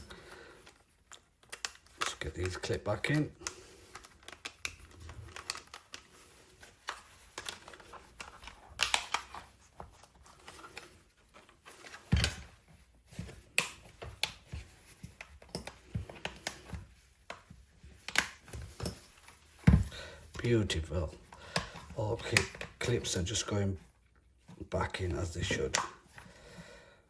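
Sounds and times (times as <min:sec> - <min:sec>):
plastic clips clicking: 0:00.6 - 0:06.2, 0:06.8 - 0:09.5, 0:21.4 - 0:22.8.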